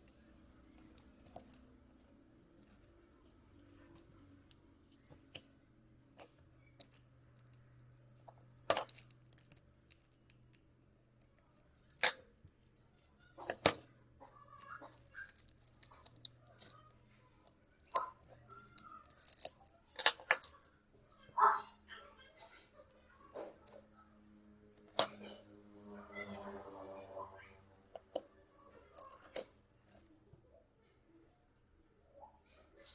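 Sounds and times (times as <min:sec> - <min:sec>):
small tools clicking and snapping: 0:00.0 - 0:01.6, 0:06.2 - 0:10.6, 0:11.2 - 0:12.3, 0:13.4 - 0:13.9, 0:14.5 - 0:20.8, 0:24.8 - 0:25.3, 0:27.9 - 0:30.1
faint low hum: 0:00.0 - 0:32.9.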